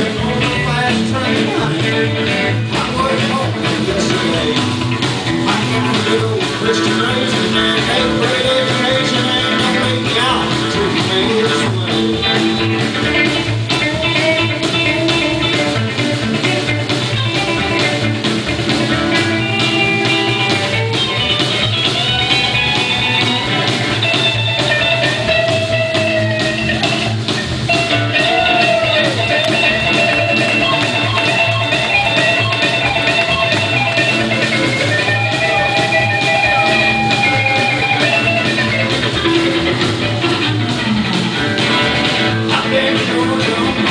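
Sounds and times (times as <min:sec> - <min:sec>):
bass: 0:00.0 - 0:43.9
drums: 0:00.0 - 0:43.9
guitar lead with bending notes: 0:00.0 - 0:43.9.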